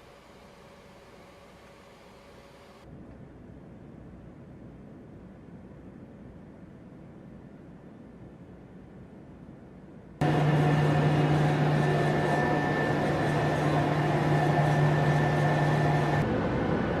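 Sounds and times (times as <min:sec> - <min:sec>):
engine hum and high whine: 0:10.2 - 0:17.0.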